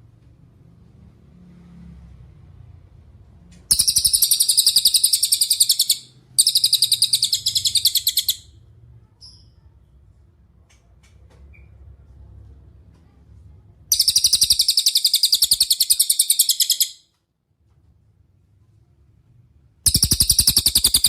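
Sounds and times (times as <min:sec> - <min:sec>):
songbird singing fast trills: 0:03.7 - 0:08.5, 0:13.9 - 0:17.0, 0:19.9 - 0:21.0
faint bird chirp: 0:03.7 - 0:10.0, 0:13.9 - 0:17.0, 0:19.9 - 0:21.0.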